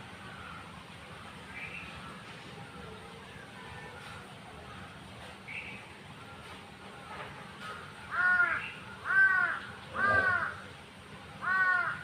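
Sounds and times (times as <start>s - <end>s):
crow cawing: 8.1s - 10.7s, 11.4s - 12.0s.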